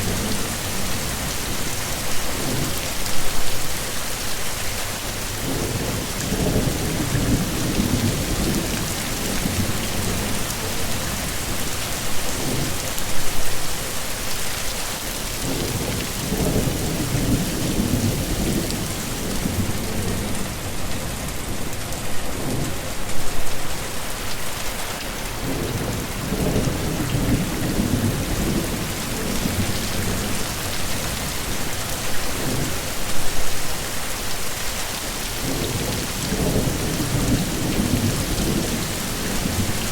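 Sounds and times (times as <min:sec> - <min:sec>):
heavy rain falling: 0:00.0 - 0:39.9
low rumbles of thunder: 0:05.4 - 0:11.7, 0:15.4 - 0:20.8, 0:25.4 - 0:31.6, 0:35.4 - 0:39.9.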